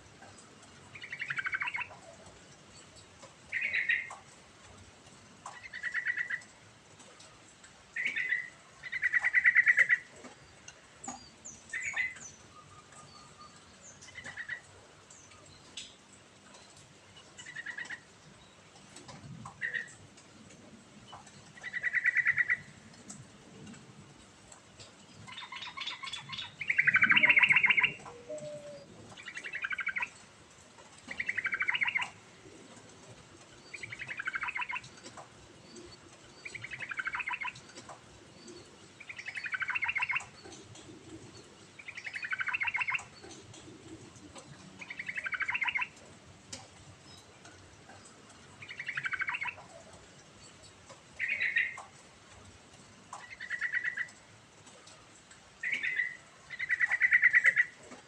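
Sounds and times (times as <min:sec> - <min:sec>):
bird singing: 0:00.9 - 0:02.1, 0:02.7 - 0:04.2, 0:08.0 - 0:15.8, 0:25.0 - 0:30.3, 0:31.1 - 0:32.2, 0:33.5 - 0:43.6, 0:44.3 - 0:46.0, 0:47.0 - 0:50.6, 0:51.2 - 0:51.8, 0:55.6 - 0:57.8.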